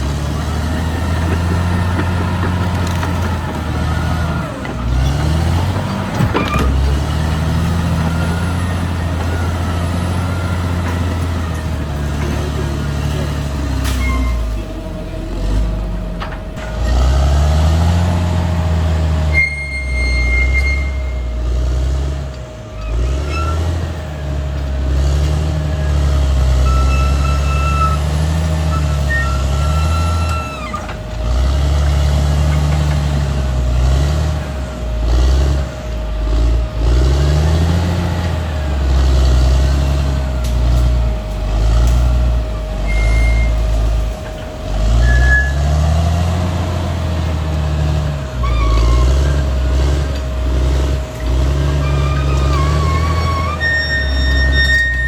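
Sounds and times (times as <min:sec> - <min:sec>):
bulldozer diesel engine revving: 0:00.0 - 0:55.0
high squeaks: 0:04.9 - 0:14.6, 0:19.3 - 0:21.4, 0:22.8 - 0:23.9, 0:26.5 - 0:31.0, 0:42.8 - 0:44.0, 0:44.9 - 0:45.8, 0:48.4 - 0:49.5, 0:51.6 - 0:55.0.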